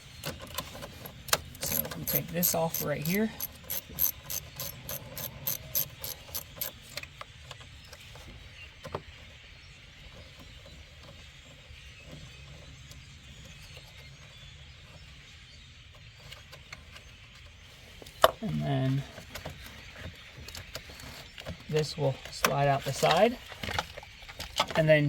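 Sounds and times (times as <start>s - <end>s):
ratchet wrench clicking: 1.6s - 6.8s
light handling noise: 16.2s - 25.0s.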